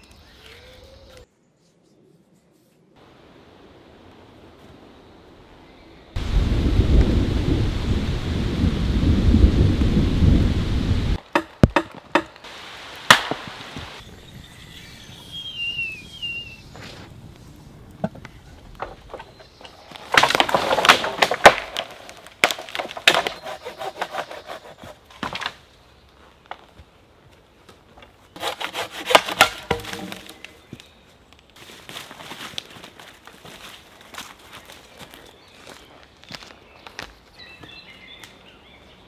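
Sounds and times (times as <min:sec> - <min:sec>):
wood knocking: 0:11.3 - 0:12.3, 0:28.4 - 0:30.6
saw cutting wood: 0:22.7 - 0:25.2, 0:28.4 - 0:30.5.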